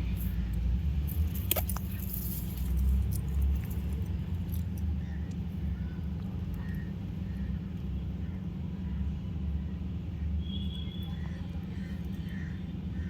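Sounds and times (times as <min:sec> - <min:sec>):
steady low rumble: 0:00.0 - 0:10.2
bird cracking seeds: 0:01.0 - 0:04.9.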